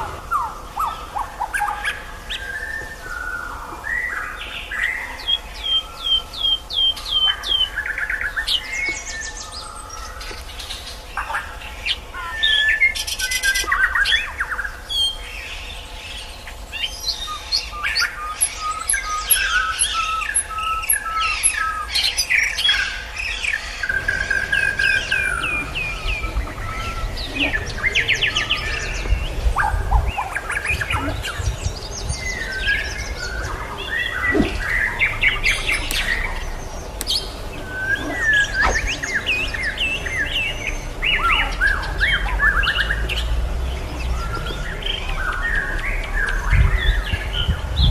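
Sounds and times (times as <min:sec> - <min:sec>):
birds singing: 0:00.0 - 0:47.9
low rumble: 0:23.8 - 0:45.2.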